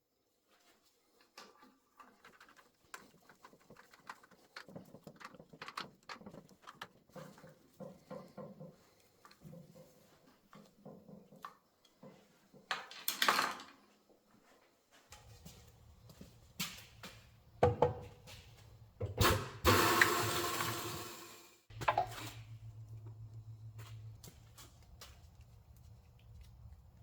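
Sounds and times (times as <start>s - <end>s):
tools and metal parts clunking: 21.7s - 23.2s.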